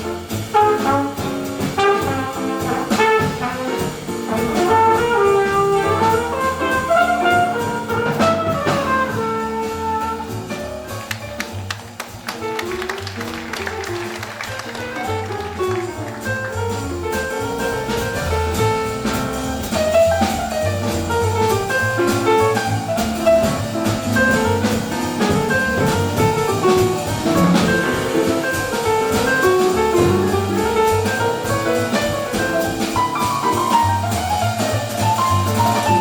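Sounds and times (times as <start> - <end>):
double bass: 0.0 - 36.0
drum kit with cymbals: 0.0 - 36.0.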